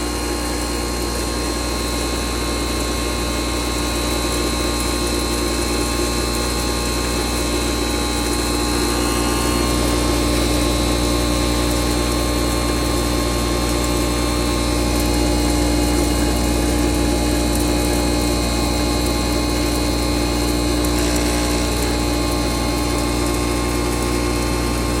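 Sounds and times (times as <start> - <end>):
flour mill motor humming: 0.0 - 25.0
steady whine: 5.6 - 25.0.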